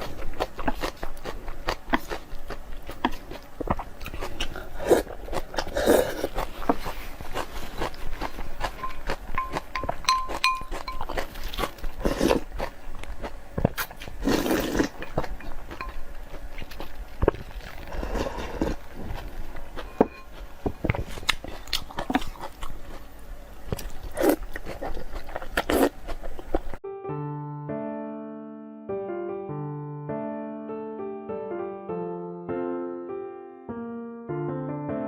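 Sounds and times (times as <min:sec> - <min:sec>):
person chewing and biting food: 0:00.0 - 0:26.8
electric piano music: 0:26.8 - 0:35.0.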